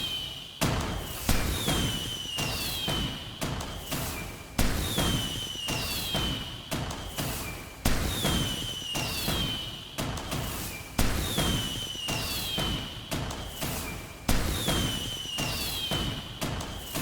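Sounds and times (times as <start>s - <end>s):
small firework pops: 0.0s - 17.0s
firework whistle falling in pitch: 11.2s - 13.9s, 14.5s - 17.0s.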